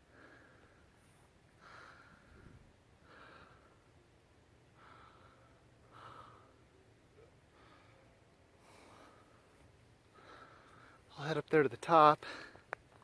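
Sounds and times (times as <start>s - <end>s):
soft breathing: 0.0s - 4.0s, 4.7s - 11.1s
low background hum: 0.0s - 13.0s.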